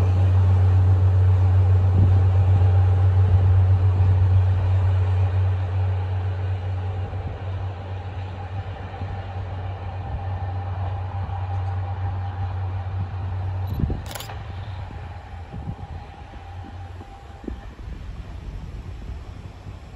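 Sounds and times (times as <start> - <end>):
faint steady whine: 0.0 - 19.9
rail vehicle engine drone: 0.0 - 19.9
sharp click: 13.7 - 14.4.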